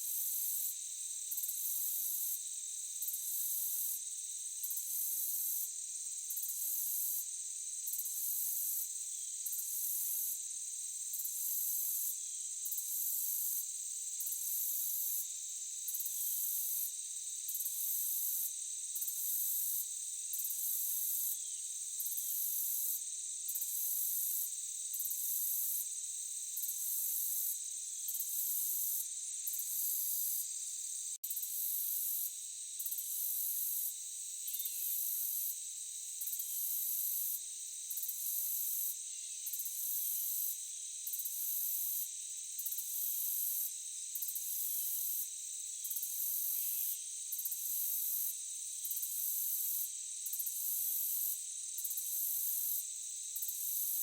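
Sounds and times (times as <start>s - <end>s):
pulsing high insect layer: 14.2s - 54.0s
crickets and insects trilling: 19.7s - 36.7s.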